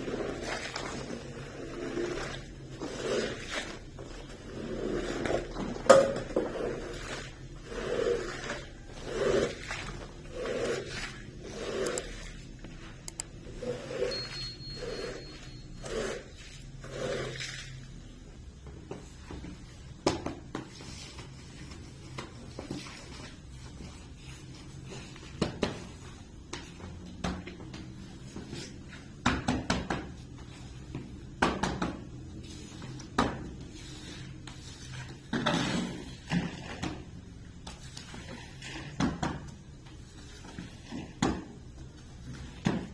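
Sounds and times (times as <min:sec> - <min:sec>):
scraping strokes over carpet: 0:00.0 - 0:18.2, 0:32.2 - 0:36.7.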